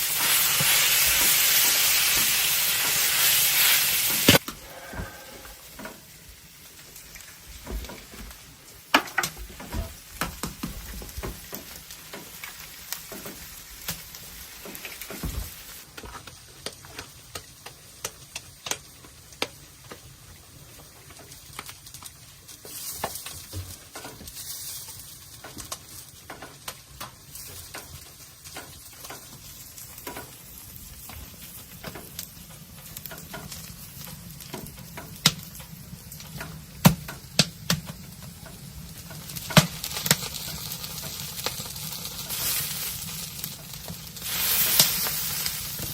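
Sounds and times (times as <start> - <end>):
food sizzling in a pan: 0.0 - 45.9
utensil scraping a pan: 4.1 - 6.0.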